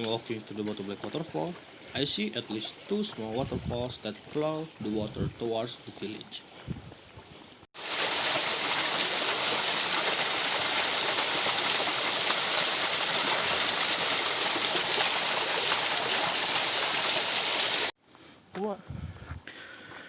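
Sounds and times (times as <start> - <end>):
small waterfall splashing: 7.8 - 18.0.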